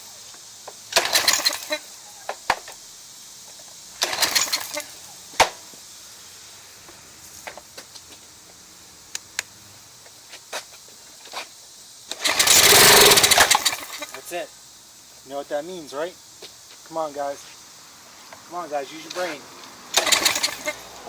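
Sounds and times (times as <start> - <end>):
engine recoil cord pull-start: 0.9 - 1.7, 4.0 - 4.9, 12.1 - 14.1, 19.9 - 20.8
engine cranking with fast rasp: 0.9 - 1.8, 4.0 - 5.0, 12.1 - 14.2, 19.9 - 21.0.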